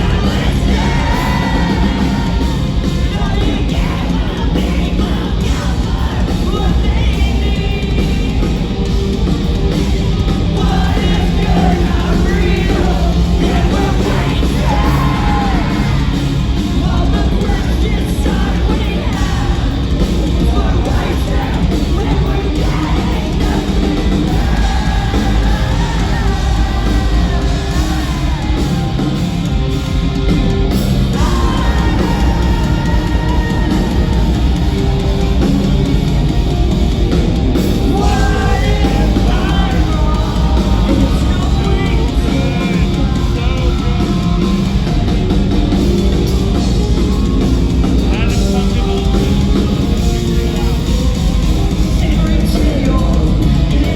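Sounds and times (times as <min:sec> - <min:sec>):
person singing and yelling: 0:00.0 - 0:08.9, 0:10.2 - 0:29.7
live rock band playing: 0:00.0 - 0:53.9.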